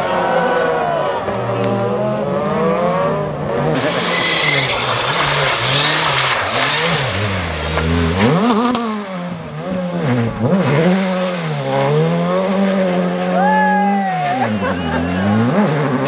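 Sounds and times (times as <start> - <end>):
rally car engine revving: 0.0 - 16.0
loud rushing noise: 3.7 - 9.5.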